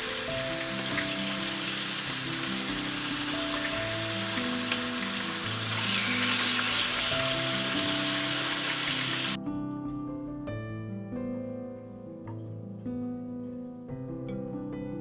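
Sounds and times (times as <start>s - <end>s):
food sizzling in a pan: 0.0s - 9.4s
soft piano music: 0.0s - 15.0s.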